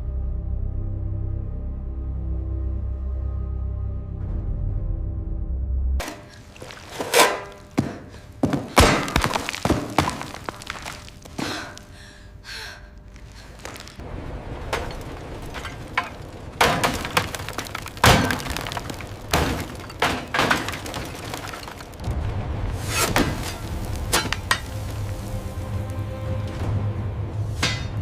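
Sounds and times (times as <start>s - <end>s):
low rumble: 11.8s - 20.0s, 21.5s - 28.0s
sharp knocks and bangs: 14.6s - 25.0s, 27.6s - 28.0s.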